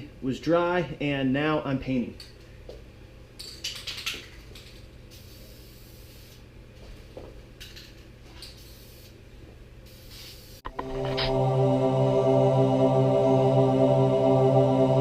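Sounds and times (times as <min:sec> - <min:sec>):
spray paint can hissing: 0:05.1 - 0:06.4, 0:08.6 - 0:09.2, 0:09.9 - 0:10.7.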